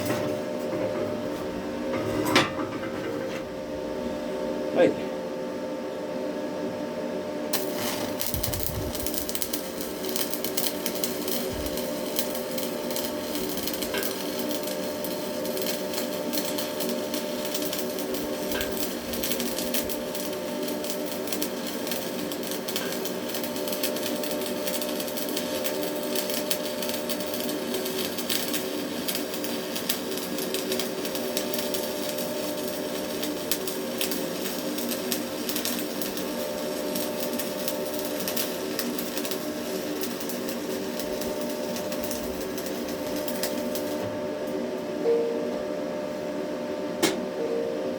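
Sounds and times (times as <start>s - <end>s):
steady hum: 0.0s - 27.5s, 38.7s - 47.9s
welding arc crackling and sizzling: 7.5s - 45.0s.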